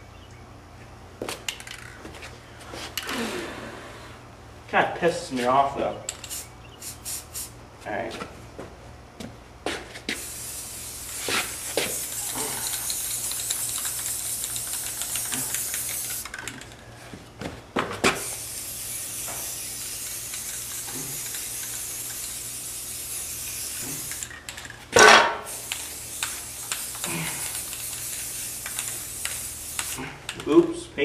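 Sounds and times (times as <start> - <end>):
spray paint hissing: 6.1 - 7.6, 10.0 - 16.7, 18.0 - 30.5.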